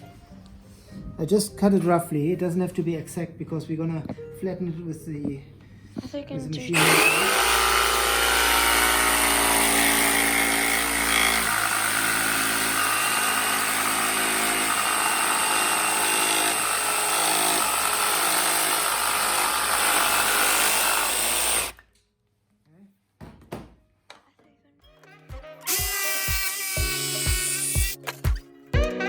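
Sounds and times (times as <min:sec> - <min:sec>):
electric jigsaw cutting wood: 0:06.7 - 0:21.8, 0:25.7 - 0:28.0.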